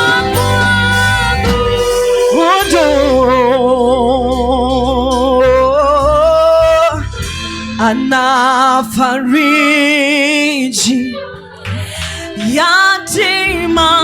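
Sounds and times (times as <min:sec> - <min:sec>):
singer holding notes with vibrato: 0:00.0 - 0:11.3
low instrumental backing: 0:00.0 - 0:14.0.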